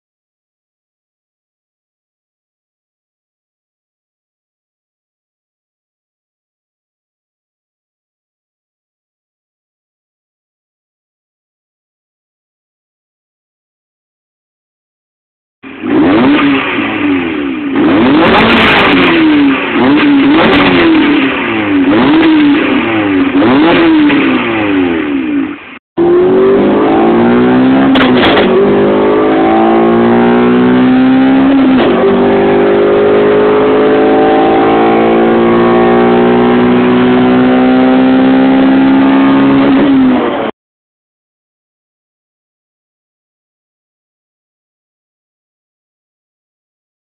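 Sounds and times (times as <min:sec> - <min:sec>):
car engine revving: 0:15.7 - 0:40.5.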